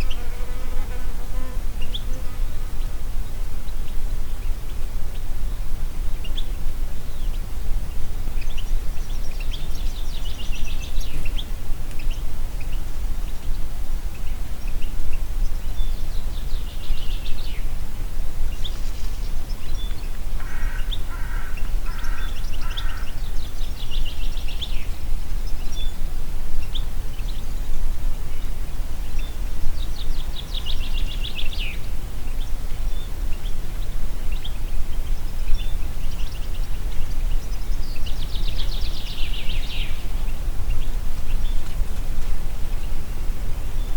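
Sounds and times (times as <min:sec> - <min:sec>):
songbirds trilling: 0:18.5 - 0:26.0.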